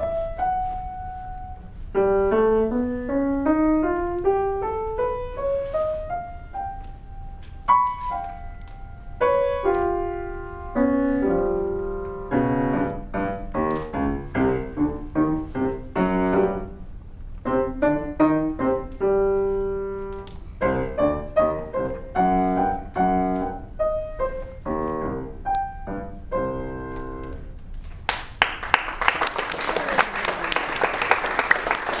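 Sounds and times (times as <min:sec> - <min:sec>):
solo piano playing: 0:00.0 - 0:27.6
audience applause: 0:28.1 - 0:32.0.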